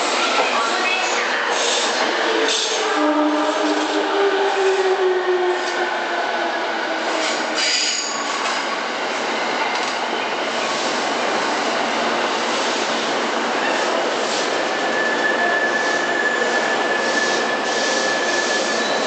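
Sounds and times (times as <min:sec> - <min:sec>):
train wheels rumbling on rails: 0:00.0 - 0:19.0
high wheel squeal: 0:14.6 - 0:19.0.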